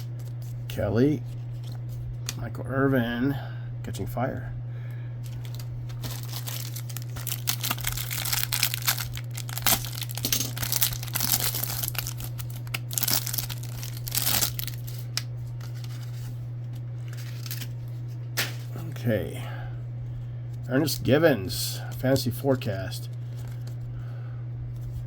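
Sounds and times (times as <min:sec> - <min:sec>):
steady low hum: 0:00.0 - 0:25.0
wrapper tearing and crinkling: 0:05.2 - 0:16.2, 0:17.0 - 0:17.9.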